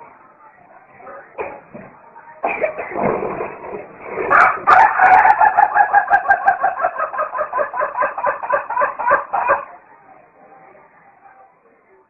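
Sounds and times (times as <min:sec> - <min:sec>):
chicken clucking rapidly: 0:04.3 - 0:09.7.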